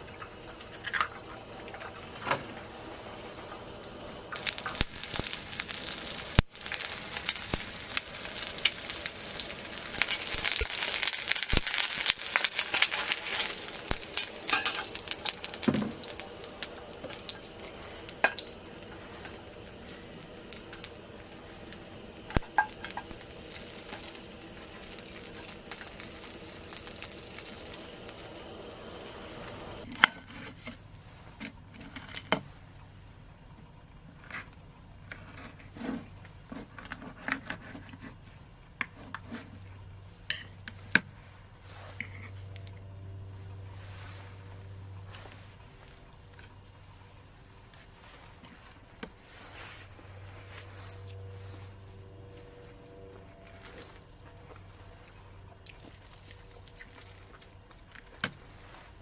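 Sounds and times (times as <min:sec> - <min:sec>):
food sizzling in a pan: 0:00.0 - 0:29.9, 0:49.2 - 0:59.0.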